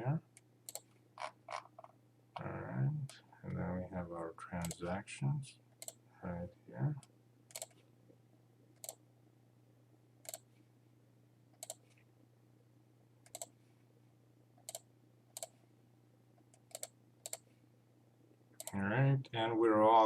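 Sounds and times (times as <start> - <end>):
faint low hum: 0.0 - 20.0
computer mouse clicking: 0.3 - 1.0, 5.8 - 6.0, 7.0 - 7.8, 8.8 - 9.0, 10.2 - 10.5, 11.6 - 12.0, 13.2 - 13.6, 14.6 - 15.6, 16.4 - 17.5, 18.6 - 18.8.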